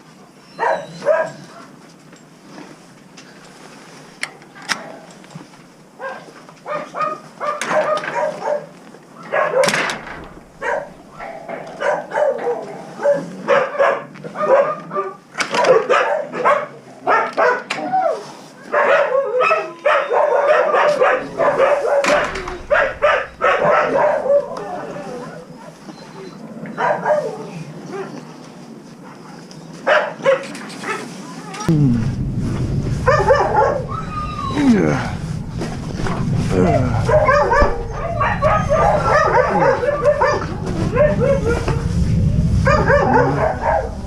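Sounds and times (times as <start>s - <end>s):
dogs barking: 0.5s - 1.7s, 6.0s - 9.9s, 10.5s - 17.8s, 18.6s - 25.8s, 26.6s - 28.2s, 29.8s - 31.1s, 33.0s - 34.6s, 36.5s - 41.8s, 42.6s - 44.0s.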